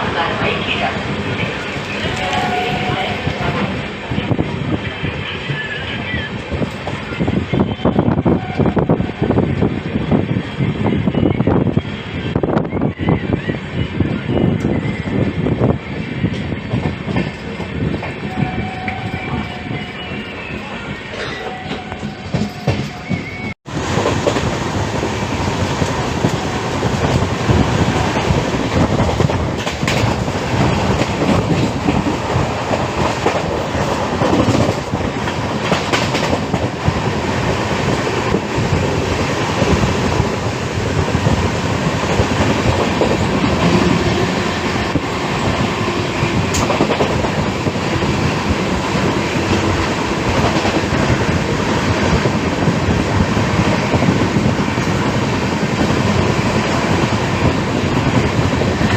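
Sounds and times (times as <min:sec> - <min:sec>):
train wheels clattering: 0:25.6 - 0:58.9.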